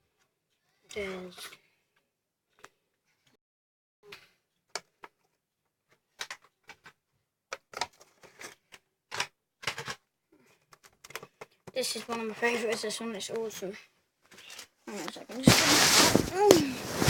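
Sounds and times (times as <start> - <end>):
toy cars clicking and clacking: 6.2 - 10.0.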